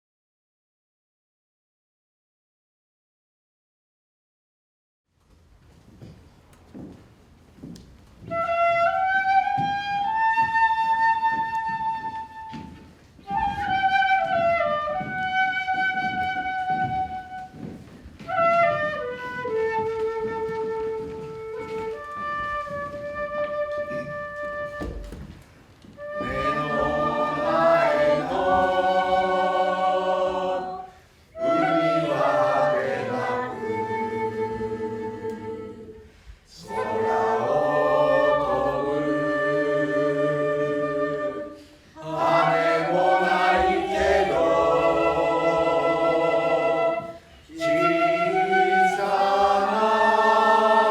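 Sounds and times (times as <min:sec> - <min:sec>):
group of voices singing: 0:26.1 - 0:50.9.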